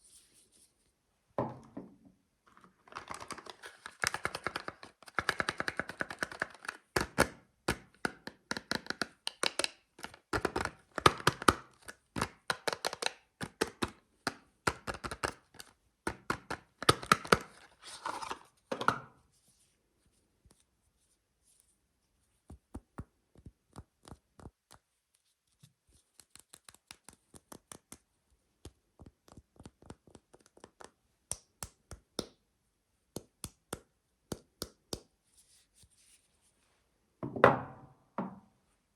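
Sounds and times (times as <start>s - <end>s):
soap wrapper crinkling and tearing: 2.7s - 18.4s.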